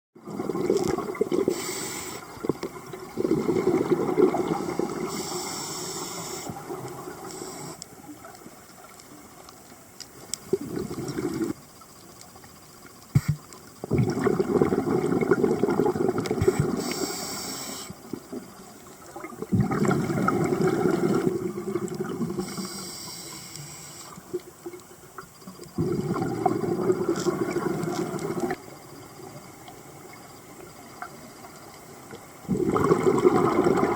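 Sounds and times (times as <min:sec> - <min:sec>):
diver exhaling bubbles underwater: 0:00.2 - 0:05.5, 0:10.5 - 0:11.6, 0:13.8 - 0:17.0, 0:19.2 - 0:22.7, 0:25.8 - 0:28.6, 0:32.4 - 0:33.9
regulator hiss: 0:01.4 - 0:02.5, 0:04.5 - 0:08.1, 0:16.4 - 0:19.0, 0:22.2 - 0:24.4.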